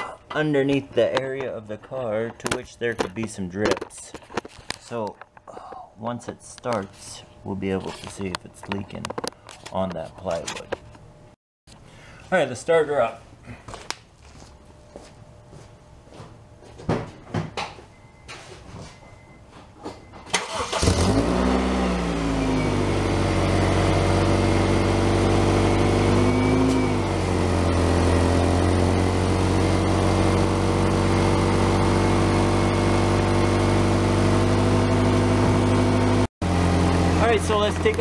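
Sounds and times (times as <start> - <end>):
car engine starting and idling: 20.3 - 38.0.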